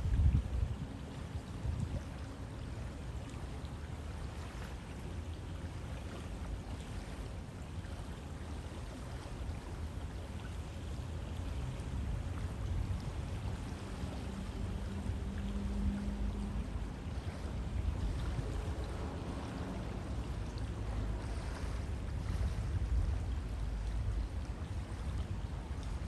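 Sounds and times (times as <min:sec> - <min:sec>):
river flowing: 0:00.0 - 0:26.0
low rumbling: 0:11.8 - 0:26.0.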